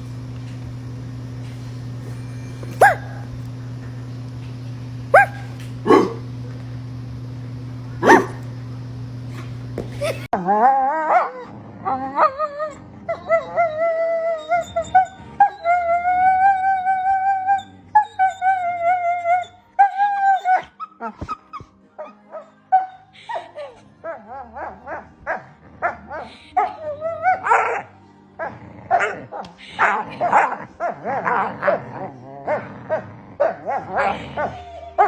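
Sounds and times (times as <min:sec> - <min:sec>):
dog howling and whining: 0:02.1 - 0:03.3, 0:05.1 - 0:06.2, 0:08.0 - 0:08.4, 0:10.0 - 0:35.0
dog yelping: 0:02.2 - 0:03.3, 0:05.1 - 0:06.2, 0:08.0 - 0:08.4.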